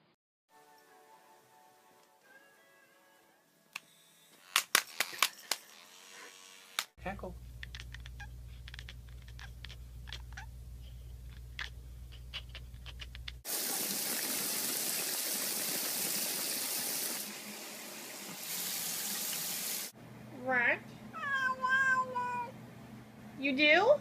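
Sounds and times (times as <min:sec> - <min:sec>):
low steady hum: 0:07.0 - 0:13.4
rush of running water: 0:13.5 - 0:19.9.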